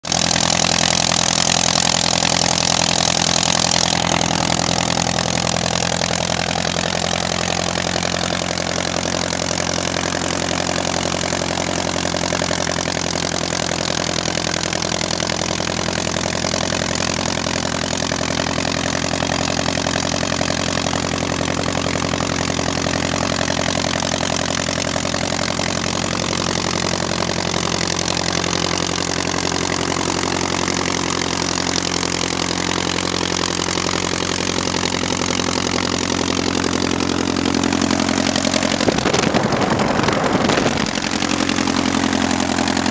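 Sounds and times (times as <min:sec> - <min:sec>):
aircraft engine running: 0:36.6 - 0:42.9.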